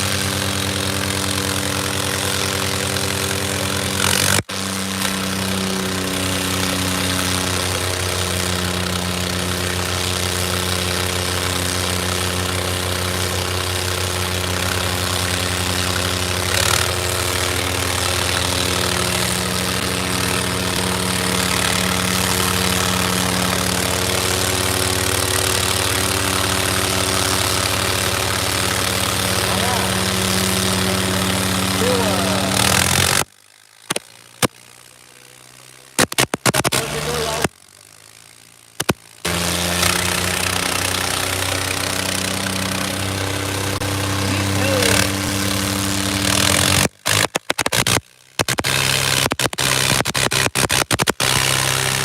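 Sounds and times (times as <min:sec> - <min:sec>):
diesel tractor engine running: 0:00.0 - 0:47.6.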